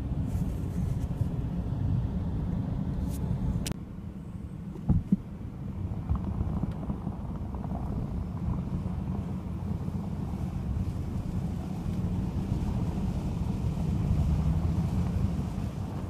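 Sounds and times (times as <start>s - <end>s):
wind buffeting microphone: 4.8s - 16.0s.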